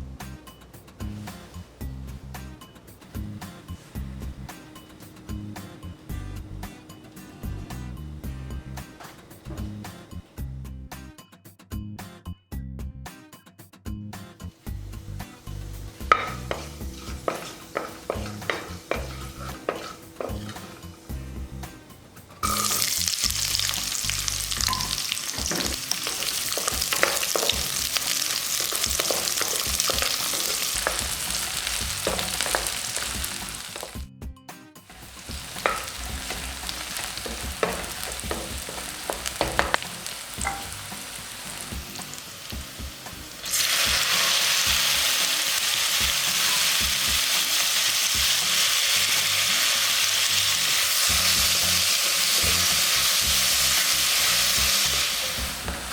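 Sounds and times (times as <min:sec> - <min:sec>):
food sizzling in hot oil: 0:14.5 - 0:34.1, 0:34.9 - 0:55.9
utensil clicking against pan: 0:16.1 - 0:20.8, 0:24.7 - 0:34.0, 0:35.0 - 0:40.8.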